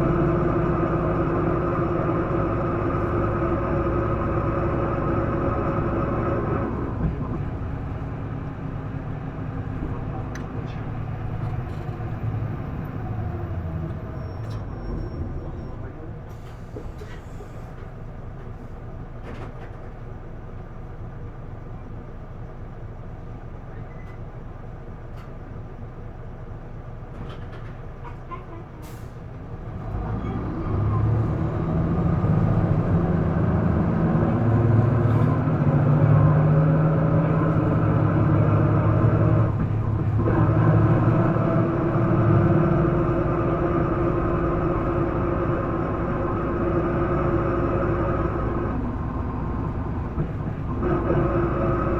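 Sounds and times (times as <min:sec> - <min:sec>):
bus diesel engine revving: 0:00.0 - 0:17.7, 0:28.8 - 0:51.9.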